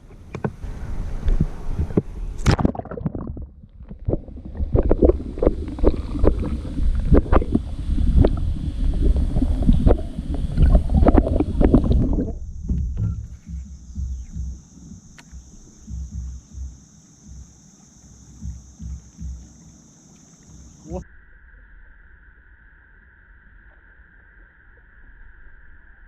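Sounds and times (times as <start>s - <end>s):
wind buffeting microphone: 0.0s - 17.5s.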